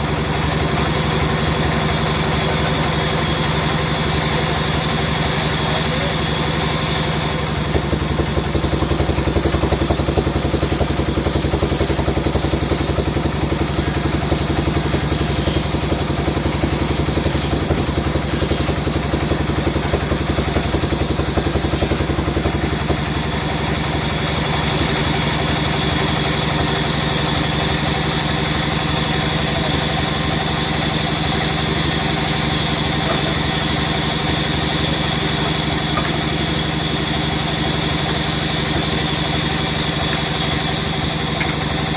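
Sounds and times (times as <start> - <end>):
sawmill machinery humming: 0.0 - 41.9.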